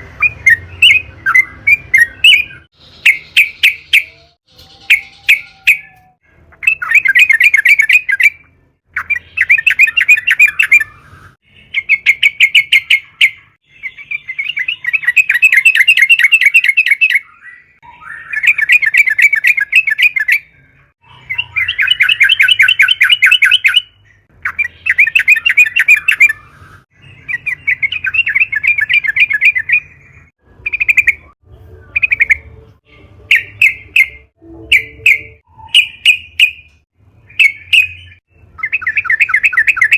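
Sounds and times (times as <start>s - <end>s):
bird chattering song: 0.0s - 32.6s, 33.3s - 39.9s.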